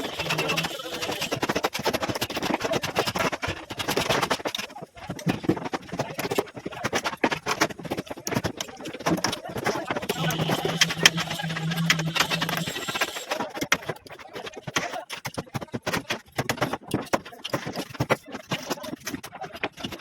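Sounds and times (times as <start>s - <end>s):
knocking and clattering formwork: 0.0s - 14.0s.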